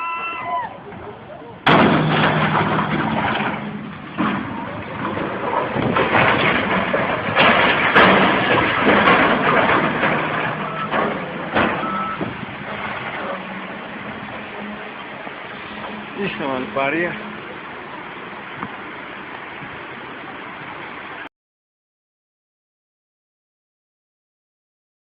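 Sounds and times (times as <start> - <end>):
heavy machine engine drone: 0.8 - 21.3
rushing clattering noise: 0.9 - 21.3
sharp knocks: 1.6 - 12.8.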